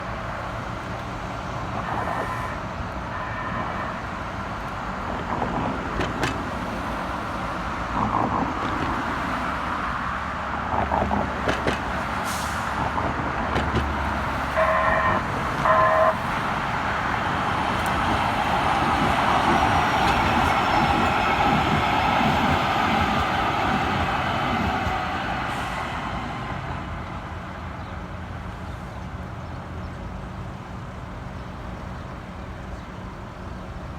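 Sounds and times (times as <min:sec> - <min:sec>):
light rail train running: 0:00.0 - 0:33.9
street traffic: 0:00.0 - 0:33.9
train horn toots: 0:01.8 - 0:04.2, 0:14.5 - 0:16.3.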